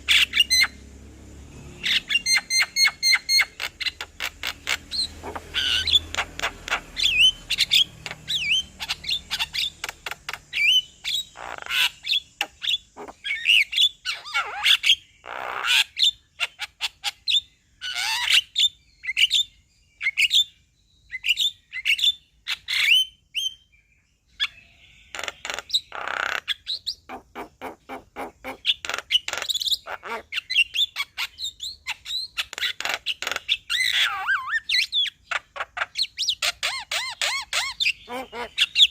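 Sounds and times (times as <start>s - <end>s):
harsh rasping bird calls: 0.0s - 23.7s, 24.3s - 38.9s.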